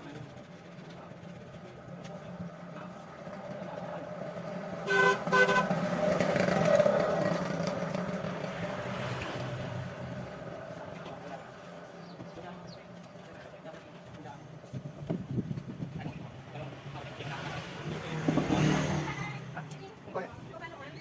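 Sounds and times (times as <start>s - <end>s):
passing vehicle engine: 2.6s - 12.0s, 16.5s - 20.0s
vehicle horn beeping: 4.9s - 5.8s.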